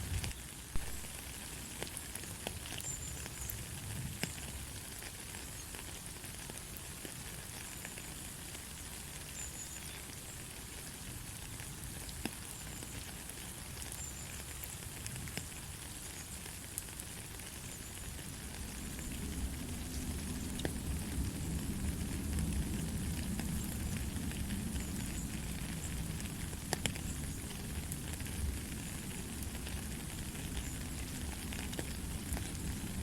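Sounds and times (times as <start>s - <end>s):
light rain: 0.0s - 33.0s
single raindrop ticks: 26.7s - 27.1s.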